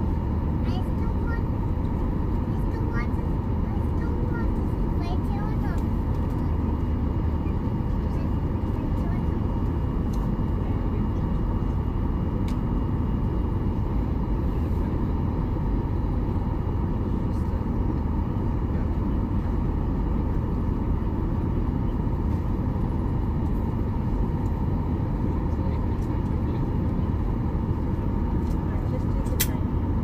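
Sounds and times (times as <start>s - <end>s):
vehicle travel rumble: 0.0s - 12.6s.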